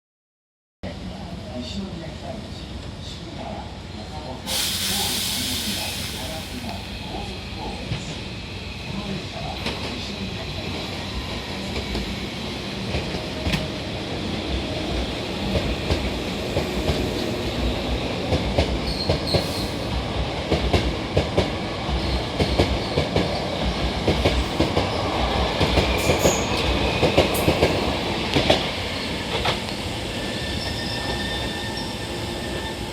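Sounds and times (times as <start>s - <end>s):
electric train running past: 4.5s - 32.9s
wheel squeal: 30.1s - 32.9s.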